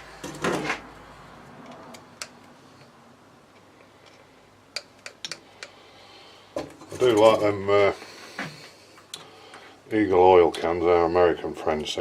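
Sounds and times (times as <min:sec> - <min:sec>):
quiet workshop background: 0:00.0 - 0:12.0.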